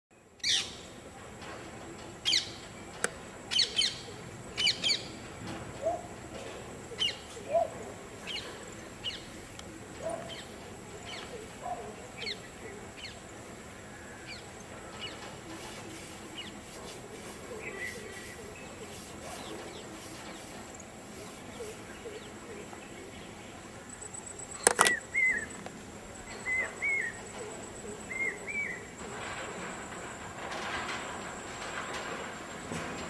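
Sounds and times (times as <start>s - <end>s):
birds chirping: 2.2s - 29.3s
lower bird calls: 2.3s - 23.6s, 24.2s - 29.0s.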